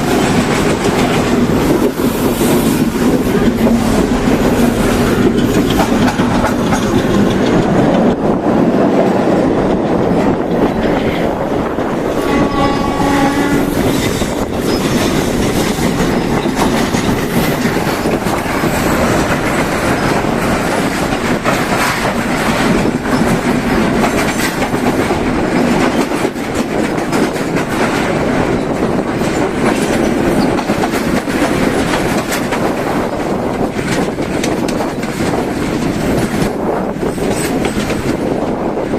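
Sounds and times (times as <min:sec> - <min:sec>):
train wheels clattering: 0:00.0 - 0:38.9
train horn: 0:12.1 - 0:13.9.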